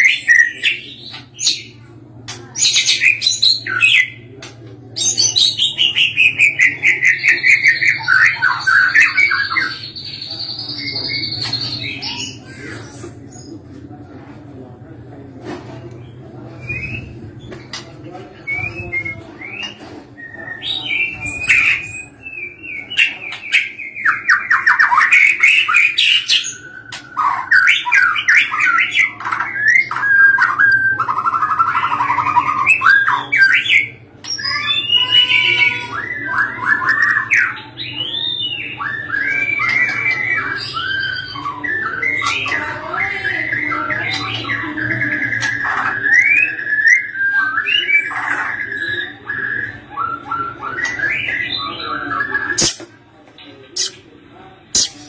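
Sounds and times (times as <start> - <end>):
songbird singing whistles and trills: 16.5 - 17.6, 18.3 - 52.9.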